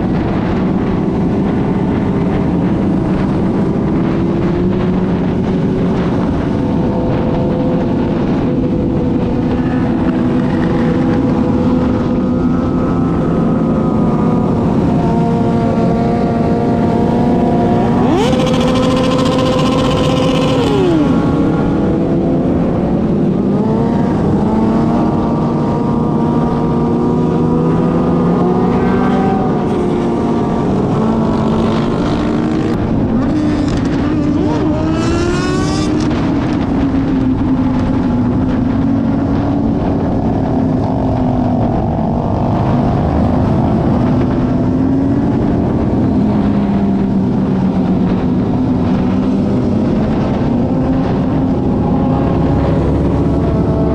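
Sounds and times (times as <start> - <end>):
motorcycle engine revving: 0.0 - 53.9
motorcycle engines running: 0.0 - 53.9.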